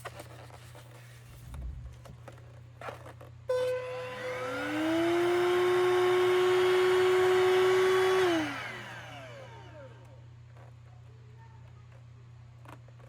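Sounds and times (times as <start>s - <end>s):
car vacuum cleaner motor whine: 3.5s - 10.2s.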